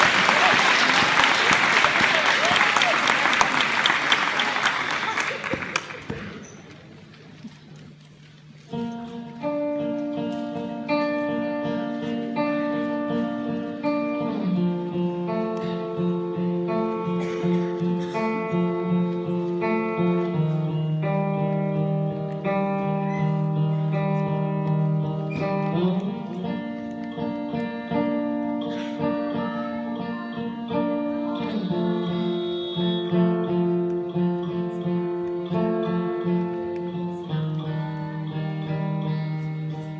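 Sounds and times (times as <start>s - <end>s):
acoustic guitar chords: 8.8s - 39.9s.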